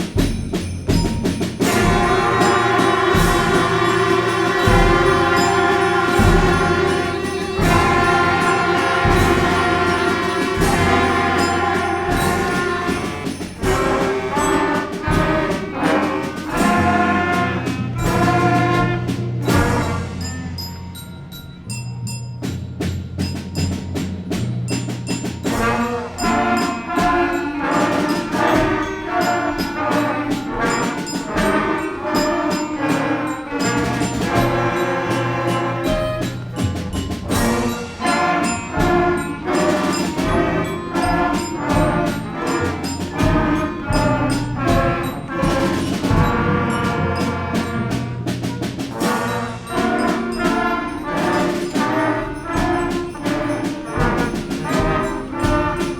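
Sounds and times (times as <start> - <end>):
bell-like strikes: 0.0 - 15.2
concert band playing: 0.0 - 55.9.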